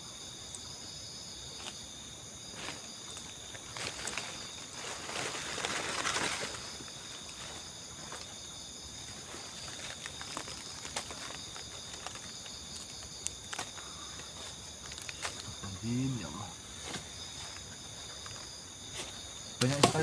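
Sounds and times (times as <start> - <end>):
crickets trilling: 0.0 - 20.0
rustling noise: 2.5 - 8.4.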